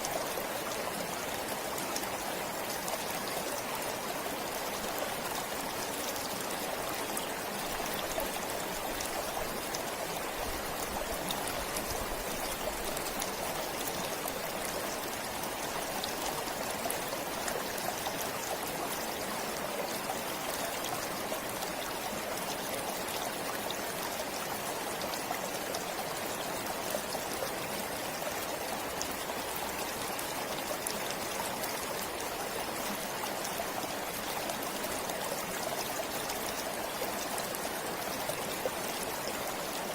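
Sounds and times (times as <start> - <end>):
forest stream flowing: 0.0 - 39.9.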